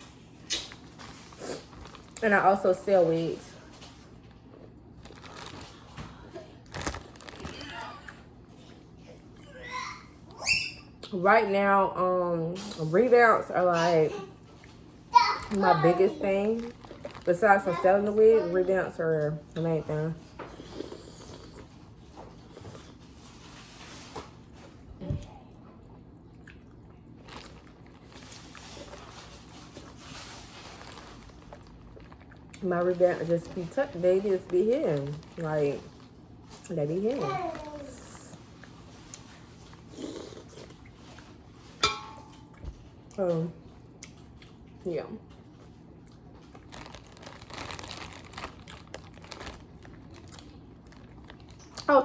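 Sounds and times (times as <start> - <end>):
food crinkling and crackling: 0.0 - 10.2, 12.5 - 52.0
biting and chewing food: 3.9 - 8.2, 26.1 - 32.6, 43.8 - 51.9.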